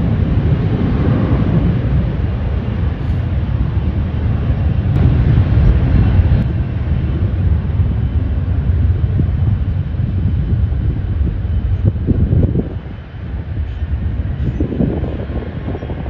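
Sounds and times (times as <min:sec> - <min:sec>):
jet airliner engines rumbling: 0:00.0 - 0:16.0.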